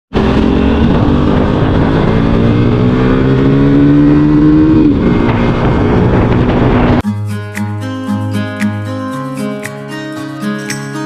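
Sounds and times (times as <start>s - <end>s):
motorcycle engine revving: 0.1s - 7.0s.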